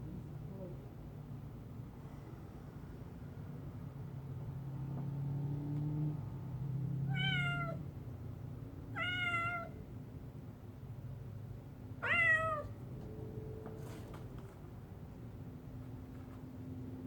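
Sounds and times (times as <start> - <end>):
cat meowing: 7.1 - 7.8, 8.9 - 9.8, 12.0 - 12.8.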